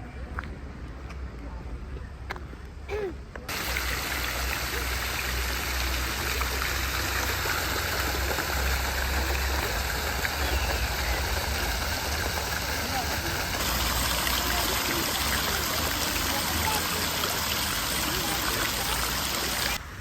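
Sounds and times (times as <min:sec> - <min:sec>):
running water rushing: 0:03.5 - 0:20.0.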